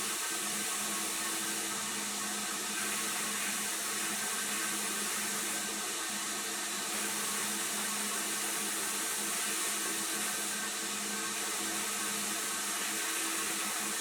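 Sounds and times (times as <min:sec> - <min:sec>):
machine hiss: 0:00.0 - 0:14.0.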